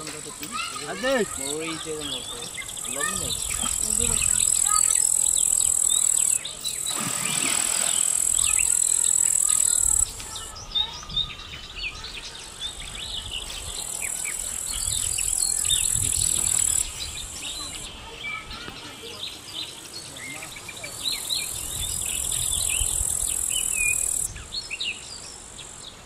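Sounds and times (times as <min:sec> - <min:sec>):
insects buzzing: 0:00.0 - 0:10.9, 0:12.1 - 0:24.3
water splash: 0:06.8 - 0:09.0.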